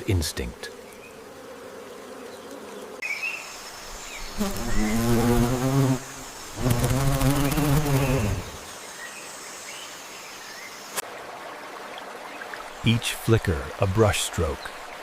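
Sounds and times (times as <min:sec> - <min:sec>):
flying insect buzzing: 0:00.0 - 0:09.8.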